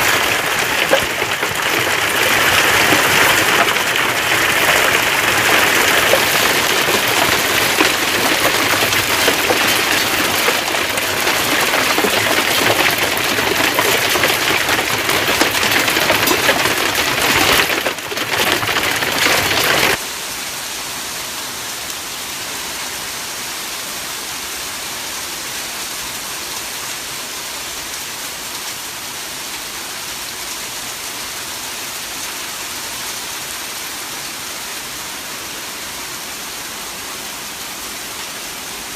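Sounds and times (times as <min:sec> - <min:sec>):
hail falling hard: 0:00.0 - 0:20.0.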